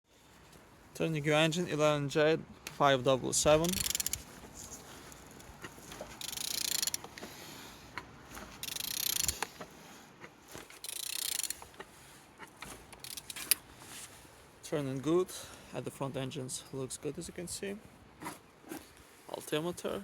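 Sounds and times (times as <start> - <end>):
scattered clicks: 3.6 - 4.3, 6.2 - 7.2, 8.6 - 9.5
engine turned over by hand: 5.0 - 7.2.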